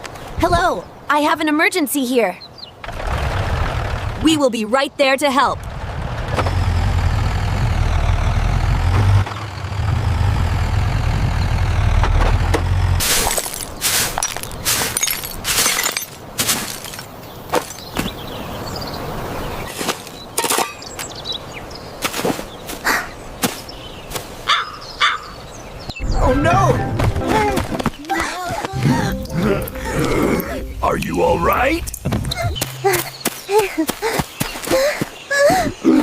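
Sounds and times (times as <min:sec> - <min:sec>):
cartoon vehicle engine rumbling: 0:02.8 - 0:13.7, 0:26.0 - 0:33.6
sharp cracks and clattering impacts: 0:11.9 - 0:17.8.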